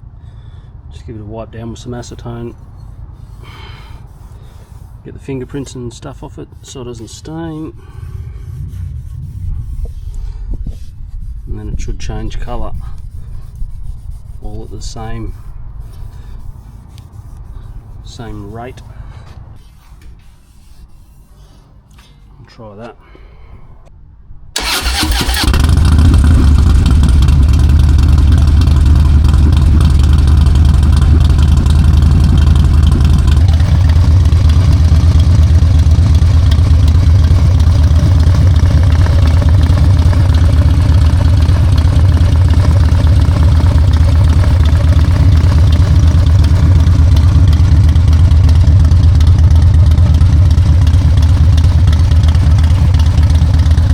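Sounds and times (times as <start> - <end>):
motorcycle engine cranking: 24.6 - 53.9
motorcycle engine idling: 24.6 - 53.9.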